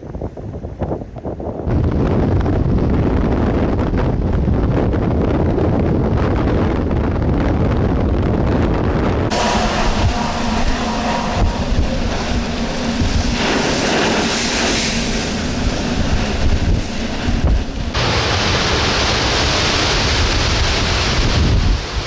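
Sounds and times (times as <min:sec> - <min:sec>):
strong wind buffeting microphone: 0:00.0 - 0:22.0
breaking surf: 0:09.3 - 0:22.0.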